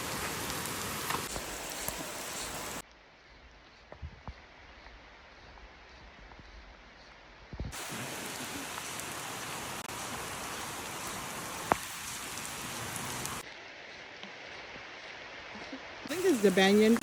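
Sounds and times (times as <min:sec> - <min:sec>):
rain falling: 0:00.0 - 0:03.2, 0:07.7 - 0:17.0.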